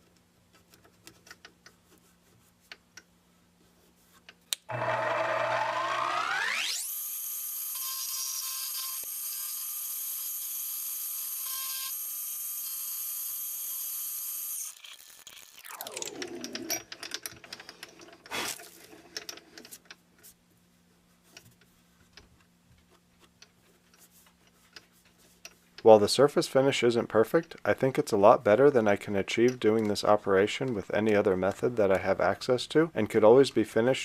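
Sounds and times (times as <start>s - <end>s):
milling machine motor whining: 4.7s - 6.9s.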